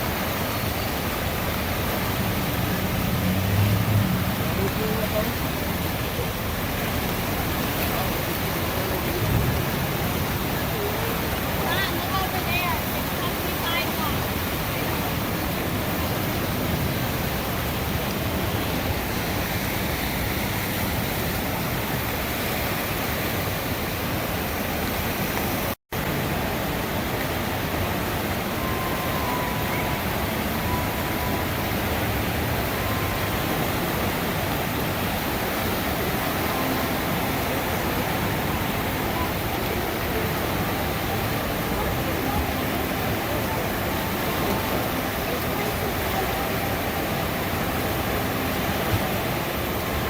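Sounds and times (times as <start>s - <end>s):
river rushing: 0.0s - 50.0s.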